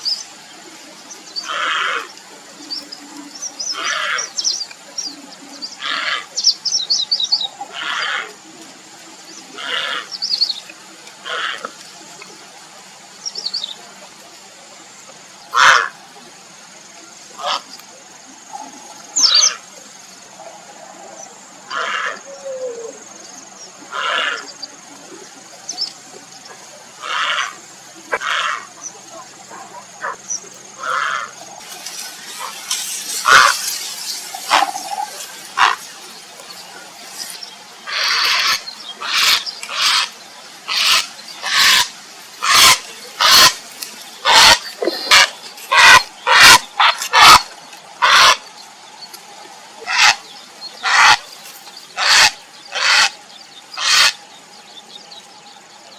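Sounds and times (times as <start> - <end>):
heron croaking calls: 27.0 - 28.7, 30.8 - 31.3, 34.5 - 35.8, 37.9 - 43.6, 44.2 - 48.4, 49.8 - 50.2, 50.8 - 51.2, 52.0 - 53.2, 53.8 - 54.2.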